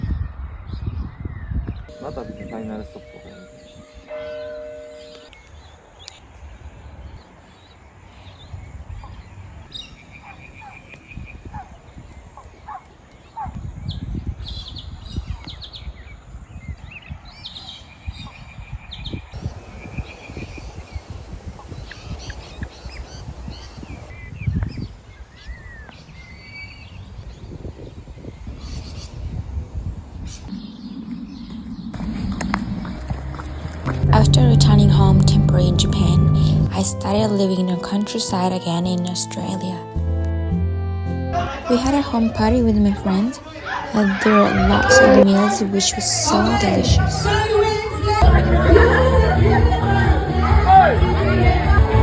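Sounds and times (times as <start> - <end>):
birds chirping: 0.0 - 29.4, 30.2 - 39.8, 41.4 - 52.0
bell ringing: 1.9 - 5.4
faint bird chirps: 19.4 - 24.3
steady low rumble: 30.4 - 37.5.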